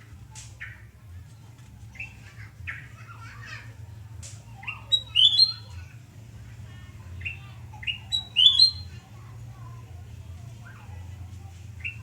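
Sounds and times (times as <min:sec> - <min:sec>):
bird chirping and whistling: 0:05.0 - 0:05.6, 0:08.1 - 0:08.8.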